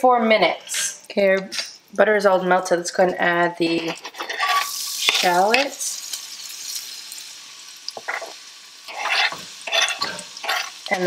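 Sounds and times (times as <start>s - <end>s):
scraping in a skillet: 3.6s - 11.0s
shallots sizzling in butter: 3.6s - 11.0s.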